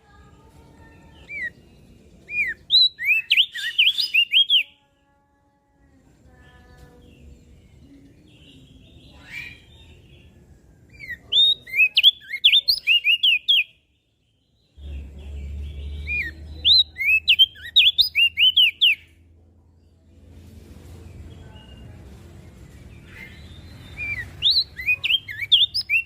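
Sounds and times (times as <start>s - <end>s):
bird chirping rapidly: 2.3s - 4.7s, 11.0s - 13.7s, 14.8s - 19.1s, 23.0s - 26.0s.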